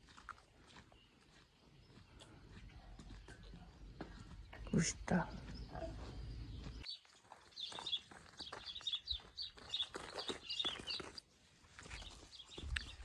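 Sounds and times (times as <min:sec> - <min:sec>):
footsteps on gravel: 0:00.0 - 0:13.0
small birds chirping: 0:00.0 - 0:13.0.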